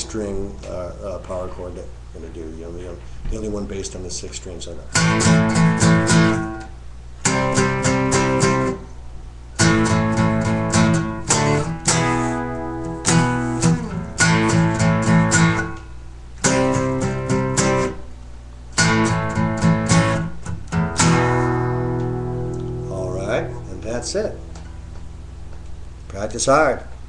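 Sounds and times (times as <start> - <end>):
guitar strumming power chords: 4.9 - 8.9, 9.6 - 26.1.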